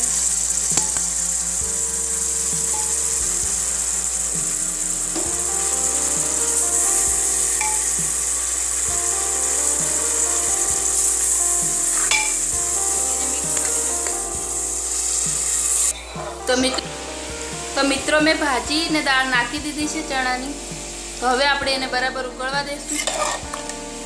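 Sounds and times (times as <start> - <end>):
masala sizzling in a pot: 0.0 - 22.1, 22.8 - 24.0
soft instrumental music: 0.0 - 24.0
ladle stirring: 11.0 - 14.2.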